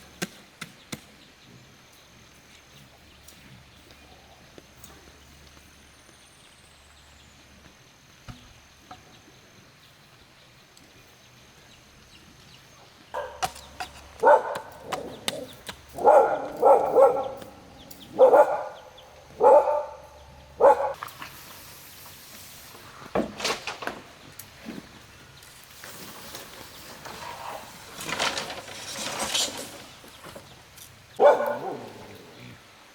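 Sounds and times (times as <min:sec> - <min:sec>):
dog barking: 0:13.2 - 0:13.5, 0:14.2 - 0:15.2, 0:15.9 - 0:21.0, 0:31.2 - 0:32.1.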